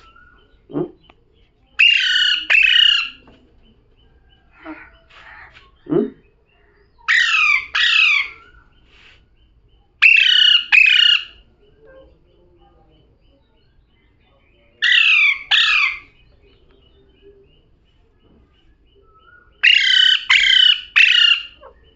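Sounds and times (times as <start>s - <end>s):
parrot calling: 1.8s - 3.2s, 7.0s - 8.6s, 10.0s - 11.4s, 14.8s - 16.2s, 19.6s - 21.9s.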